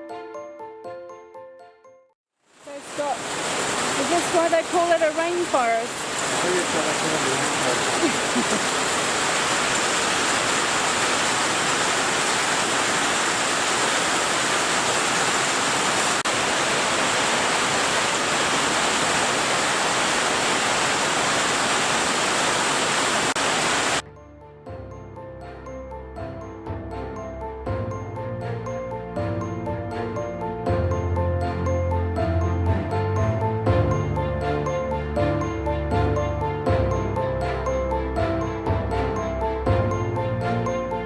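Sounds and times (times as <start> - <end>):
music: 0.0 - 2.2, 4.0 - 5.8, 24.0 - 41.0
heavy rain pouring: 2.5 - 24.0.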